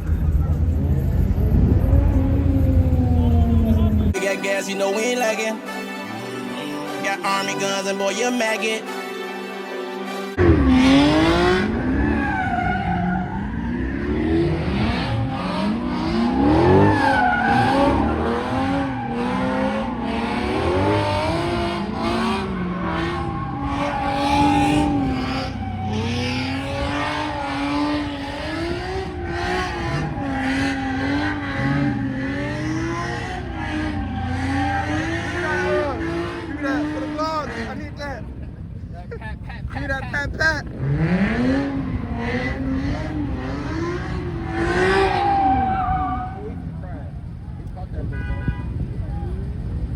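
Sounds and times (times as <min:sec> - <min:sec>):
car engine revving: 0:00.0 - 0:04.2, 0:10.4 - 0:49.9
tyres squealing: 0:11.2 - 0:38.0.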